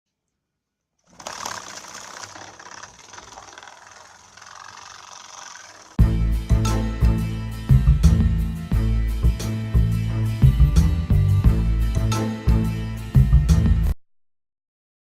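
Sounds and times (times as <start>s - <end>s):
small electric motor rattling: 1.0s - 6.0s
loud music: 6.0s - 13.9s.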